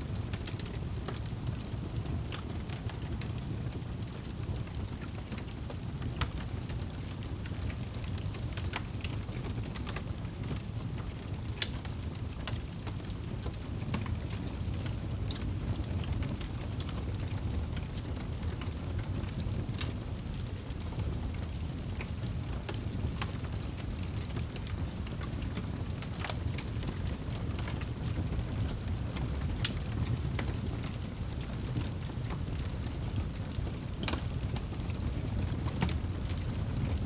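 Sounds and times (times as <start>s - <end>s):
fire crackling and popping: 0.0s - 37.0s
steady rain hiss: 0.0s - 37.0s.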